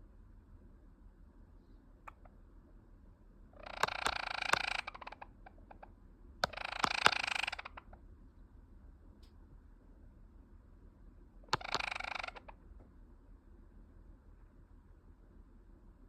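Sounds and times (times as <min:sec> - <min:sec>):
sparrow rattling call: 0:03.6 - 0:05.4, 0:06.4 - 0:07.9, 0:11.5 - 0:12.5
sharp clicks: 0:03.7 - 0:05.0, 0:06.4 - 0:07.7, 0:11.5 - 0:12.4.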